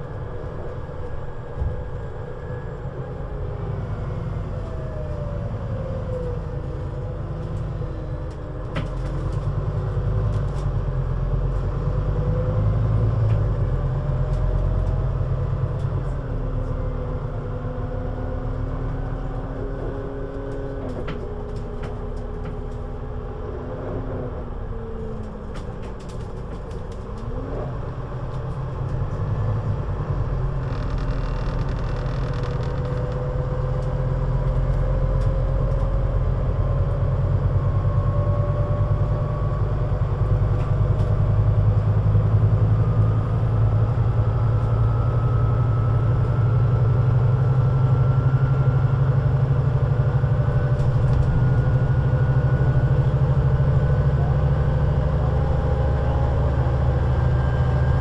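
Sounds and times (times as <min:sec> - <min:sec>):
bus diesel engine accelerating: 0:00.0 - 0:58.0.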